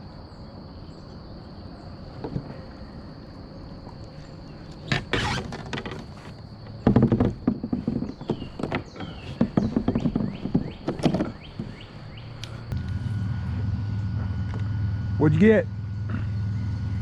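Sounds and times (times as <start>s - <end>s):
high insect drone: 0.0s - 17.0s
knocks and thuds on a kayak: 4.8s - 12.3s.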